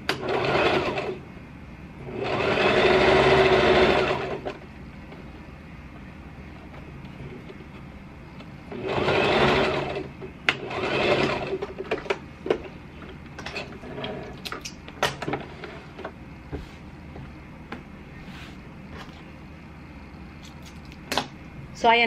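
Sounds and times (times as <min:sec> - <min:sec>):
sewing machine stitching: 0:00.1 - 0:01.2, 0:02.1 - 0:04.6, 0:08.7 - 0:12.1.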